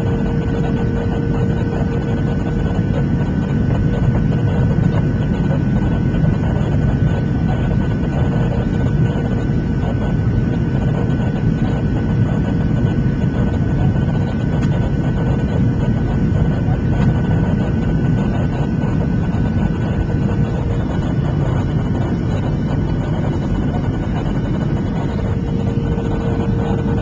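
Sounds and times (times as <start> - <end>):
airplane cabin engine rush: 0.0 - 27.0
faint steady whine: 0.0 - 27.0.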